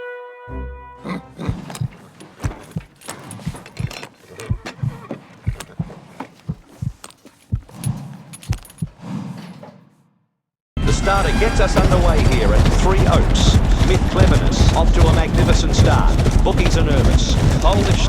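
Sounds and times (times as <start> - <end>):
horse hoofbeats at a walk: 1.0 - 9.0, 11.7 - 18.0.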